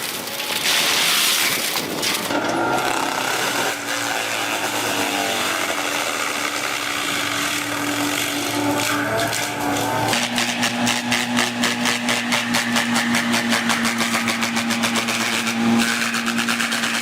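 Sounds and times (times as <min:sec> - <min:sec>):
machine engine running: 0:02.0 - 0:17.0.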